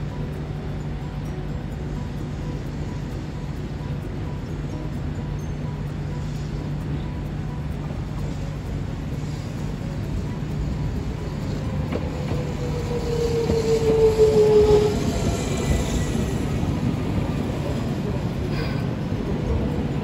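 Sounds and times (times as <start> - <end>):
drawn-out whine: 0.0 - 20.0
tram rumbling past: 0.0 - 20.0.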